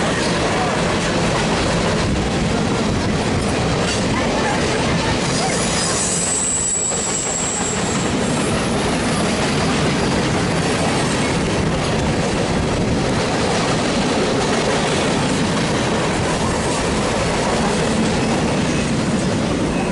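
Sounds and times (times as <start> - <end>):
train wheels rumbling on rail: 0.0 - 19.9
high wheel squeal: 5.2 - 9.5.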